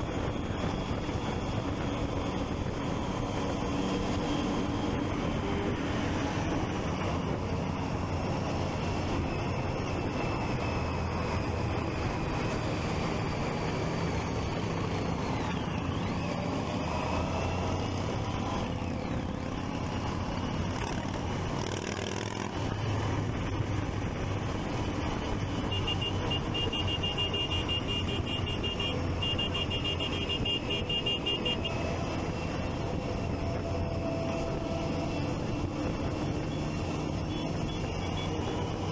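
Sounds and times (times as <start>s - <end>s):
wind noise: 0.0s - 15.4s
traffic noise: 0.0s - 38.9s
motorcycle engine running: 25.0s - 33.0s.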